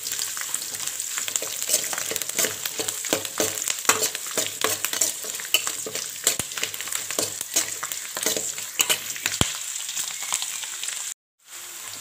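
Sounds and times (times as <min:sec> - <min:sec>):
food sizzling in hot oil: 0:00.0 - 0:12.0
ladle scraping metal pan: 0:00.6 - 0:09.4.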